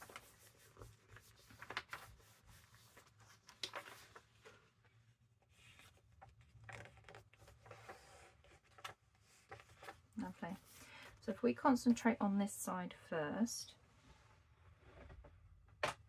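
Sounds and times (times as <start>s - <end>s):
paper rustling: 0.0s - 11.1s.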